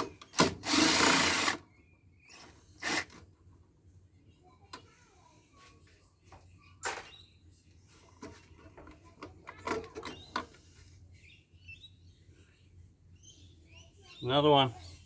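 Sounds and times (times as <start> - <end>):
faint bird chirping: 4.1 - 8.6, 10.1 - 15.0.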